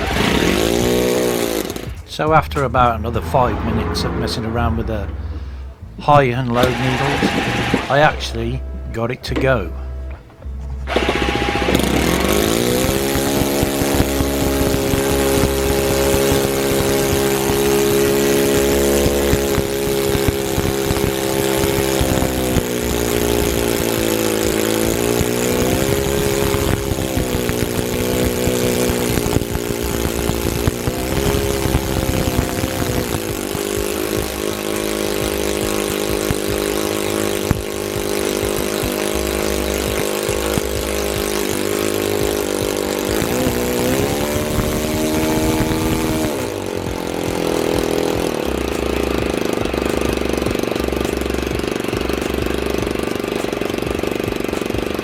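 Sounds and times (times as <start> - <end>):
model aircraft engine running: 0.0 - 55.0.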